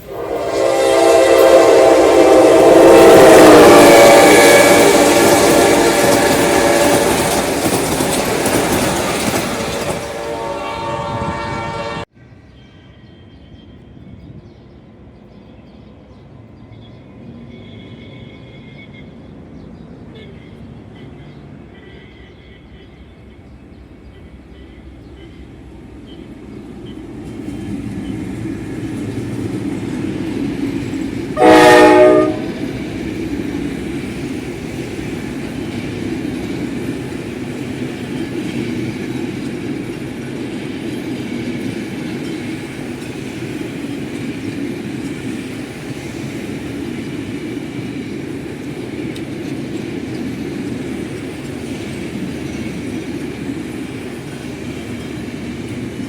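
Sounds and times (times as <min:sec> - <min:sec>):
locomotive horn blast: 0:00.0 - 0:07.7, 0:09.8 - 0:12.1, 0:31.4 - 0:32.8
train running past: 0:00.0 - 0:56.0.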